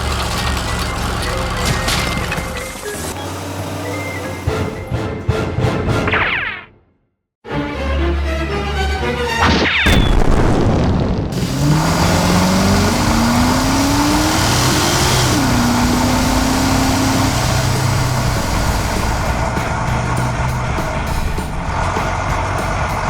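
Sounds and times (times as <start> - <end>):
vehicle engine with rising pitch: 0.0 - 4.8, 11.3 - 23.0
boom: 9.4 - 11.4.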